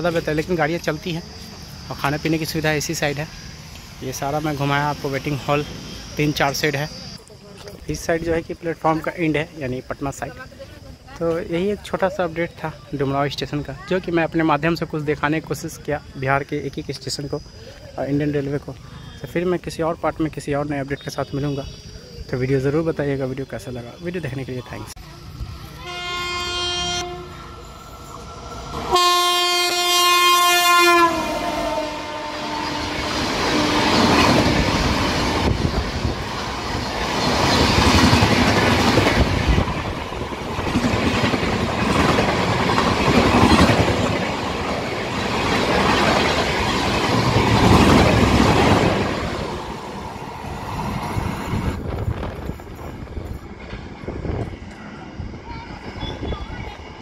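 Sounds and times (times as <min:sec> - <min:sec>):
passenger train rushing past: 0:00.0 - 0:18.7, 0:19.5 - 0:57.0
train horn blasts: 0:25.8 - 0:27.5, 0:28.9 - 0:34.2.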